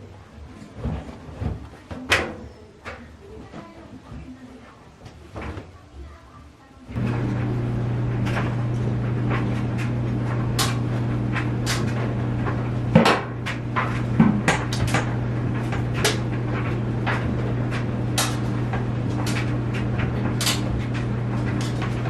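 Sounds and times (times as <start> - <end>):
steady low hum: 6.9 - 22.0.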